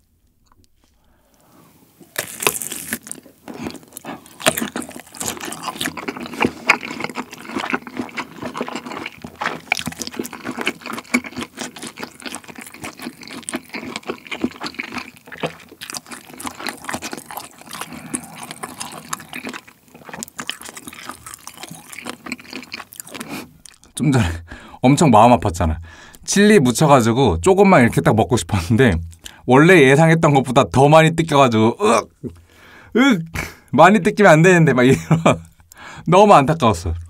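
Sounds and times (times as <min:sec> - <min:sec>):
biting into sausage: 0:02.0 - 0:24.0
chewing with mouth clicks: 0:02.1 - 0:24.0.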